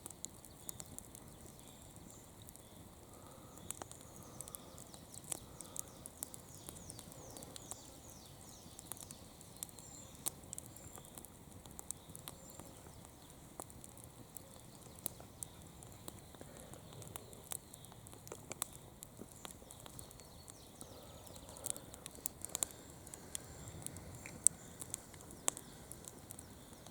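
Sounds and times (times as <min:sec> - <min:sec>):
campfire crackling: 0:00.0 - 0:26.9
faint steady hiss: 0:00.0 - 0:26.9.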